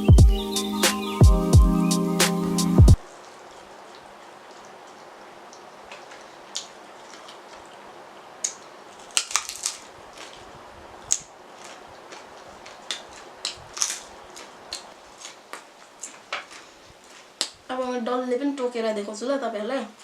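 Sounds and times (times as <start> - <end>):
food being crunched and chewed: 3.2 - 17.7.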